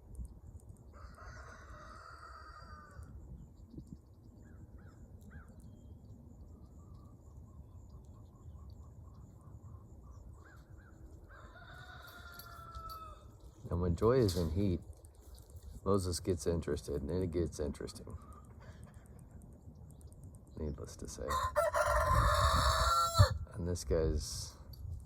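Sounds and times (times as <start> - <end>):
faint rooster crowing: 0.9 - 3.3, 10.4 - 13.4, 21.2 - 23.5.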